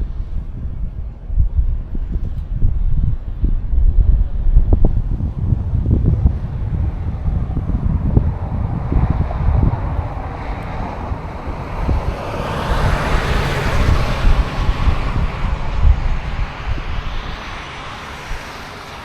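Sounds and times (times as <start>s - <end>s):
wind buffeting microphone: 0.0s - 19.0s
approaching vehicle rushing: 3.9s - 19.0s.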